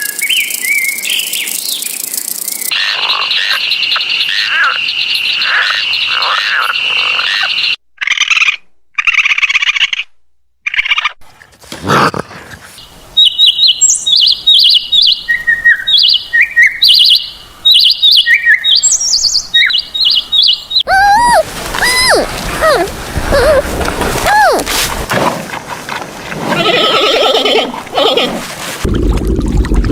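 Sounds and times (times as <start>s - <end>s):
buzzy croaking animal calls: 2.7s - 10.0s, 20.8s - 25.6s
sliding pitch call: 20.9s - 24.9s.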